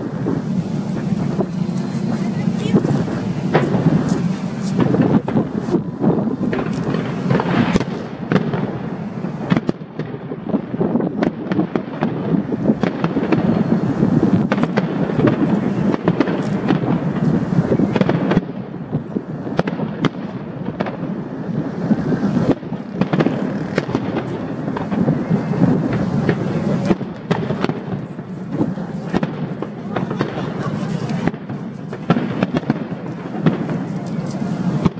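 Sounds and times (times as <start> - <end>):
fireworks bangs and crackles: 0.0 - 34.9
sharp firework reports: 0.0 - 34.9
steady rumble: 0.0 - 34.9.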